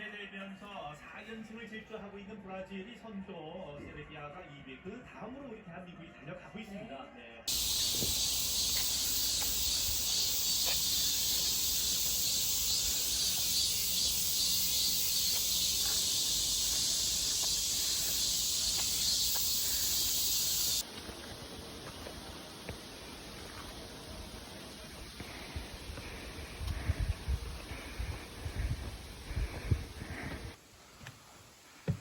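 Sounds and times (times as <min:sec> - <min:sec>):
cicadas buzzing: 0:07.5 - 0:30.6.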